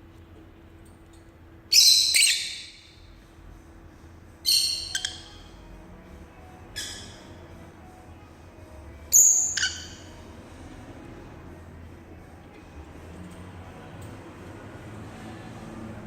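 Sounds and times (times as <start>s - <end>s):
lovebird shrill calls: 1.7s - 2.8s, 4.5s - 5.3s, 9.1s - 10.0s.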